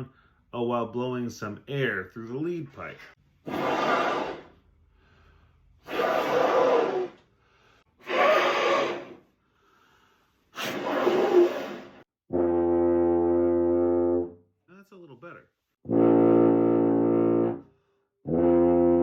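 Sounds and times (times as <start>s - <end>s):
breath rushing through tuba: 3.4s - 14.0s
tuba low note: 12.3s - 14.4s, 15.9s - 19.0s.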